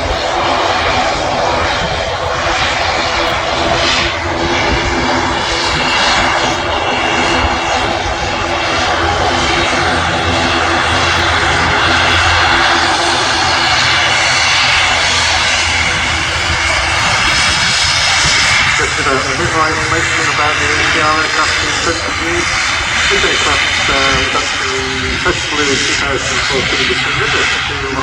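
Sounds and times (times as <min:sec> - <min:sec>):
turboprop airliner passing: 0:00.0 - 0:28.0.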